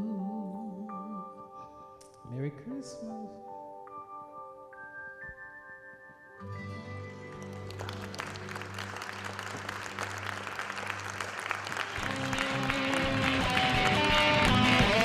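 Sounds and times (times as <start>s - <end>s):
music with guitar: 0.0s - 10.4s, 11.8s - 15.0s
audience applauding: 7.2s - 15.0s.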